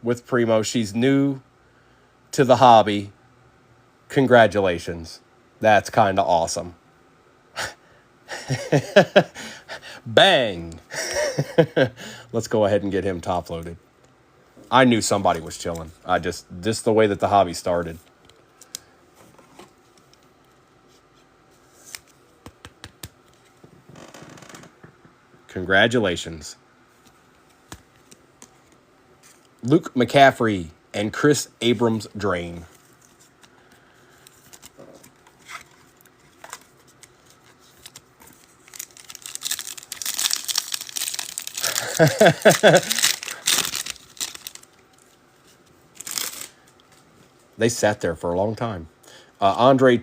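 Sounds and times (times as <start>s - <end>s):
cards and plastic holders handled: 20.9s - 23.9s, 32.7s - 41.6s
foil wrapper tearing and crinkling: 37.7s - 44.8s, 46.0s - 46.6s.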